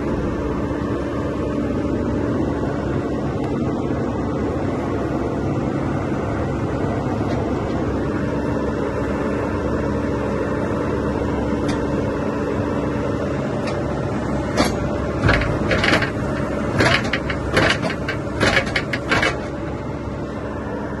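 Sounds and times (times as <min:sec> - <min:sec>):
diesel engine running: 0:00.0 - 0:21.0
sharp knocks and clanks: 0:14.5 - 0:19.6.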